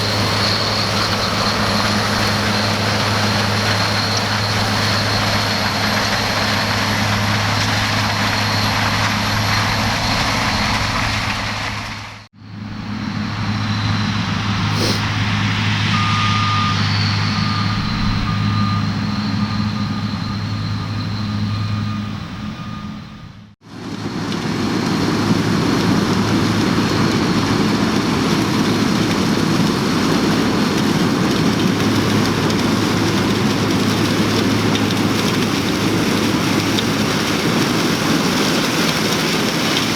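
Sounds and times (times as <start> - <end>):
diesel machinery engine hum: 0.0 - 39.9
short beep: 15.9 - 23.4.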